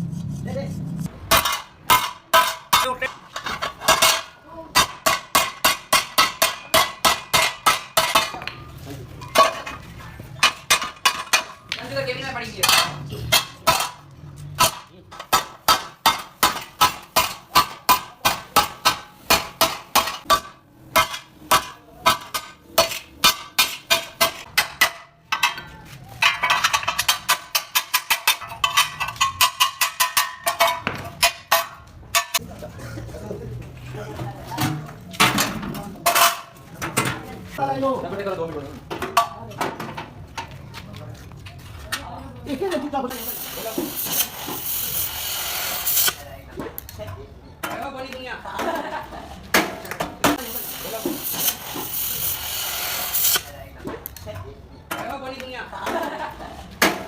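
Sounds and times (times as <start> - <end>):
hammer on sheet metal: 3.9 - 8.4, 14.6 - 25.6.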